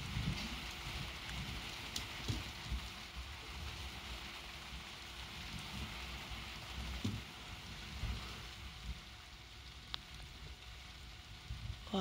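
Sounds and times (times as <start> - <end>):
light rain falling: 0.0 - 12.0.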